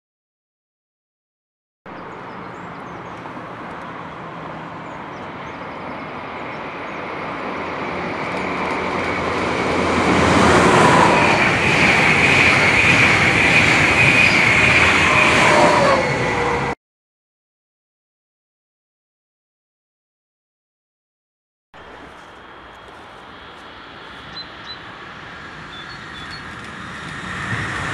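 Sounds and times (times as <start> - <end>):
train passing with whine: 2.0 - 16.8, 21.8 - 27.9.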